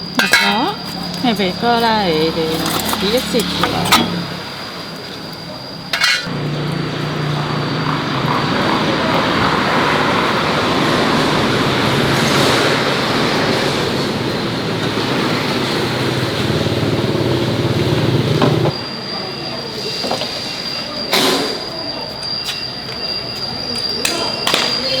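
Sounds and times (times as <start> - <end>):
pressure washer motor humming: 0.0 - 18.8.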